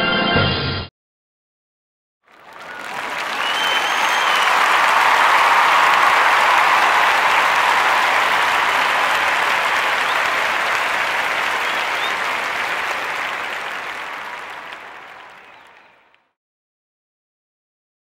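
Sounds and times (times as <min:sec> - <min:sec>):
crowd applauding: 0:02.3 - 0:16.3.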